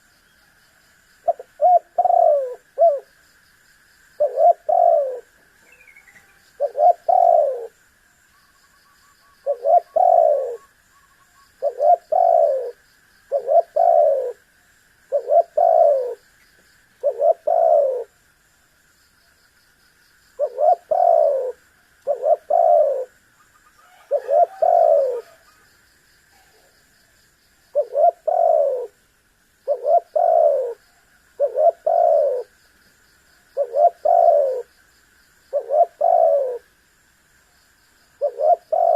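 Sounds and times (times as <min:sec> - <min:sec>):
dove cooing: 0:01.2 - 0:03.2, 0:04.2 - 0:07.8, 0:09.4 - 0:10.7, 0:11.6 - 0:14.4, 0:15.1 - 0:16.2, 0:17.0 - 0:18.2, 0:20.4 - 0:23.2, 0:23.8 - 0:25.6, 0:27.7 - 0:29.0, 0:29.6 - 0:32.6, 0:33.6 - 0:34.7, 0:35.5 - 0:36.7, 0:38.2 - 0:38.9
faint high chirps: 0:04.2 - 0:07.7.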